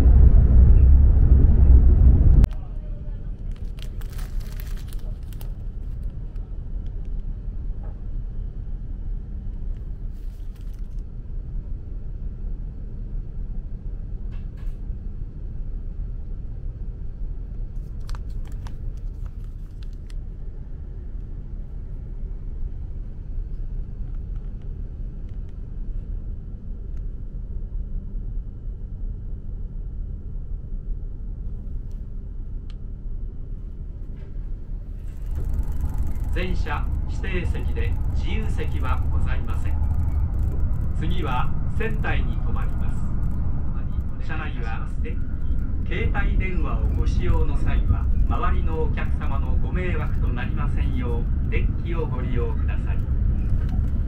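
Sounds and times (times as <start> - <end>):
train cabin rumble: 0.0 - 11.3, 31.5 - 54.0
faint rustles and clicks: 3.4 - 6.3, 9.8 - 11.0, 17.7 - 20.2.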